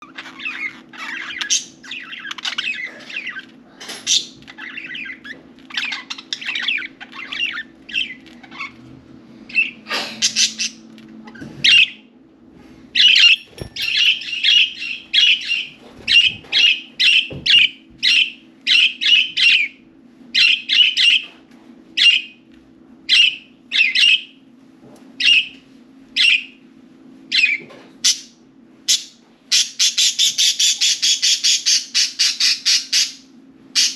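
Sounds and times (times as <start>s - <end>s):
faint steady hum: 0.0s - 33.9s
budgerigars chattering and chirping: 0.1s - 8.8s, 28.9s - 33.2s.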